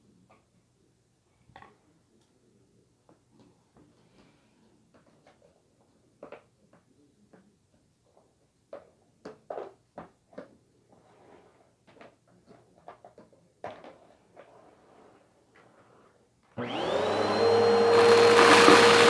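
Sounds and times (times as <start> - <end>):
household objects knocking and clunking: 16.7 - 19.0.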